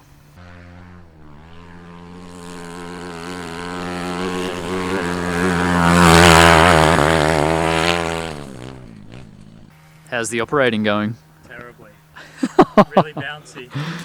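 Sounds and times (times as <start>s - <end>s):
motor passing by: 0.0s - 9.7s.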